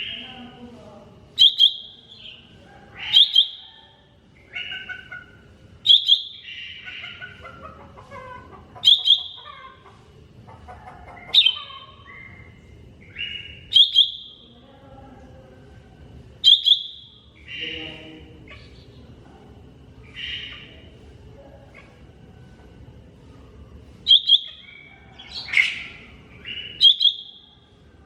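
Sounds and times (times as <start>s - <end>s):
bird singing: 0.0s - 0.6s, 1.4s - 7.7s, 8.8s - 9.8s, 11.2s - 14.6s, 16.4s - 19.2s, 20.0s - 21.0s, 24.0s - 27.6s.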